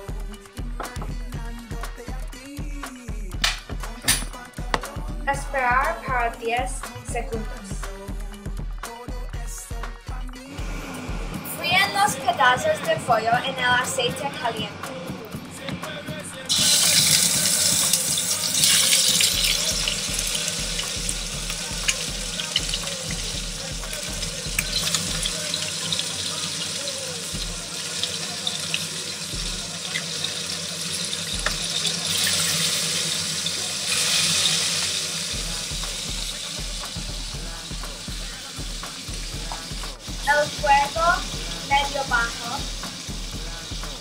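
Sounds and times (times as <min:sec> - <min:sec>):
chicken sizzling in hot oil: 0:16.4 - 0:44.0.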